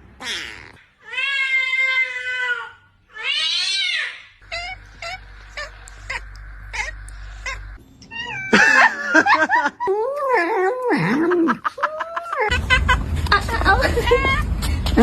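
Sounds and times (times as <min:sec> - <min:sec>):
cat yowling: 0:00.2 - 0:08.9.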